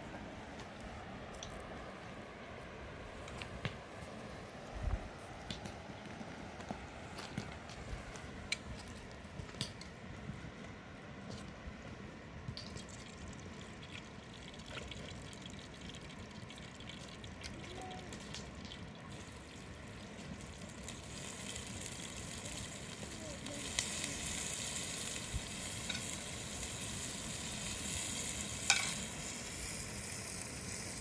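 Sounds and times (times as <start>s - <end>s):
water trickling and splashing: 12.5s - 31.0s
high hiss: 20.8s - 31.0s.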